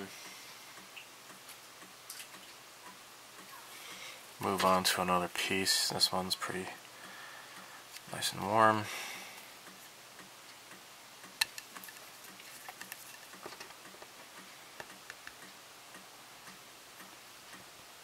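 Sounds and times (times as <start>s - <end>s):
faint repeating ticking: 6.8s - 8.0s, 8.9s - 12.4s.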